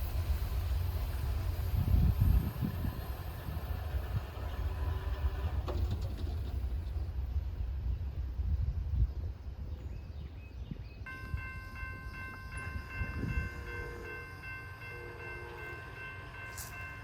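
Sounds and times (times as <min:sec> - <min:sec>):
railroad crossing bell ringing: 0:11.1 - 0:17.0.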